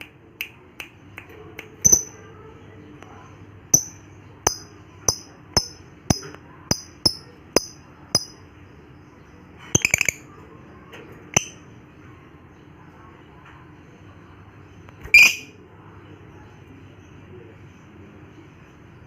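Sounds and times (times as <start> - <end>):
bird chirping high-pitched: 1.8 - 2.2, 3.8 - 8.4, 9.7 - 10.3, 11.3 - 11.6, 15.0 - 15.5.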